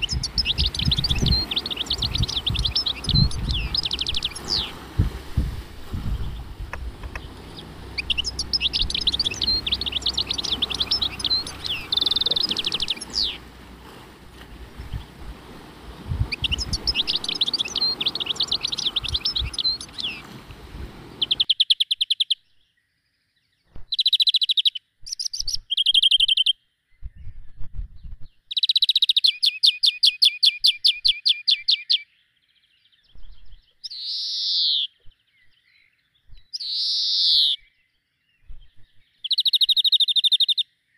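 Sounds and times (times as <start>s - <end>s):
low background hiss: 0.0s - 21.5s
small birds singing and trilling: 0.0s - 40.9s.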